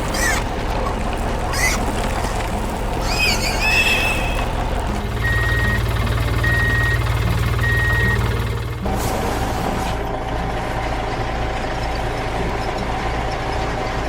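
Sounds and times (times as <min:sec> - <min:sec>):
horse whinnying: 0:00.0 - 0:05.0
vehicle engine rumbling: 0:00.0 - 0:13.9
reversing alarm beeps: 0:03.1 - 0:08.7.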